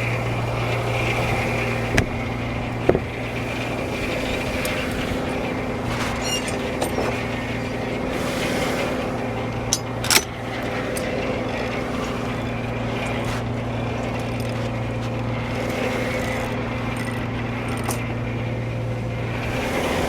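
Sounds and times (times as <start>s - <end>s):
sawmill drone: 0.0s - 20.0s
sharp knocks: 2.8s - 3.3s.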